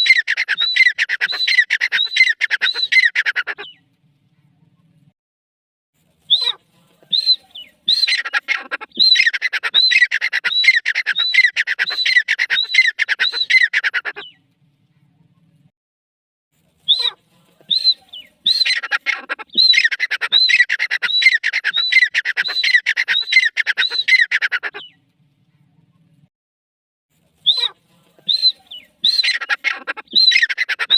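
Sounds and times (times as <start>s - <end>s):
francoline calling: 0.0s - 3.9s, 6.2s - 14.5s, 16.8s - 25.1s, 27.4s - 30.9s.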